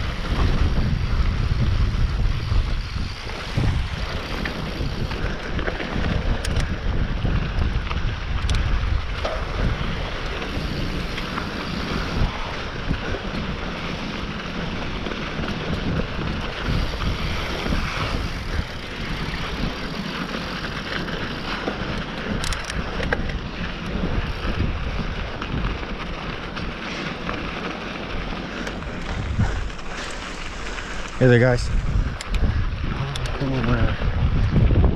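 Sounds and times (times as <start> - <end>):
bike knocks and rattles: 0.0 - 30.5
tyres rumbling on rough ground: 0.0 - 34.9
wind buffeting microphone: 0.0 - 34.9.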